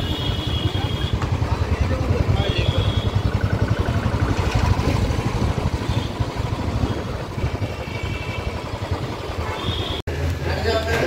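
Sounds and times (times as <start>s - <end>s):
motorcycle engine running: 0.0s - 10.4s
road and traffic noise: 0.0s - 11.0s.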